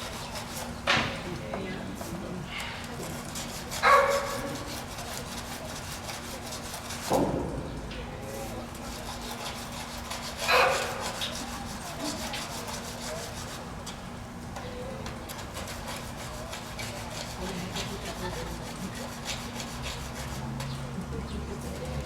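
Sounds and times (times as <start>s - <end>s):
rasp scraping toenails: 2.9s - 7.1s, 8.8s - 13.6s, 15.3s - 20.7s.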